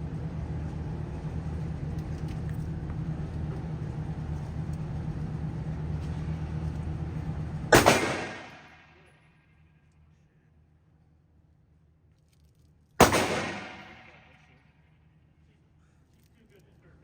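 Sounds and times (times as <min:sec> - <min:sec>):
low mechanical hum and rumble: 0:00.0 - 0:17.0
loud sharp bang: 0:07.7 - 0:09.0, 0:13.0 - 0:14.3.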